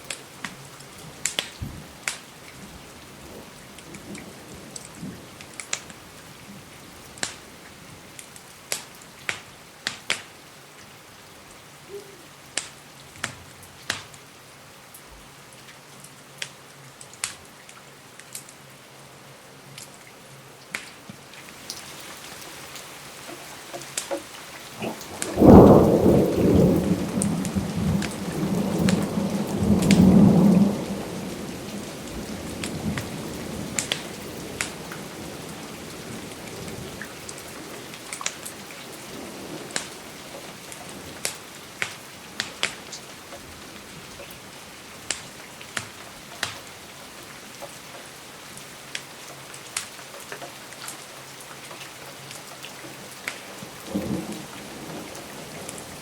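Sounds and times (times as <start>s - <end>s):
steady rain: 0.0s - 56.0s
thunder rumbling: 24.6s - 38.0s.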